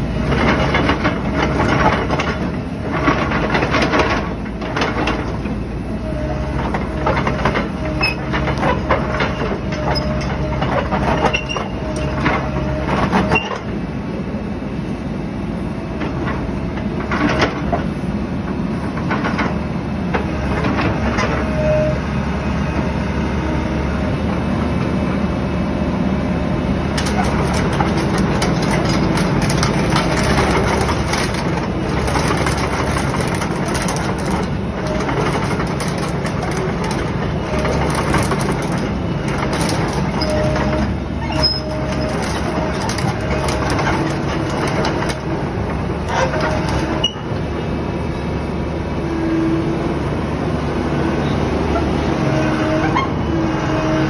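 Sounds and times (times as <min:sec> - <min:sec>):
excavator diesel engine running: 0:00.0 - 0:54.0
metallic clanks and clicks: 0:27.0 - 0:45.2.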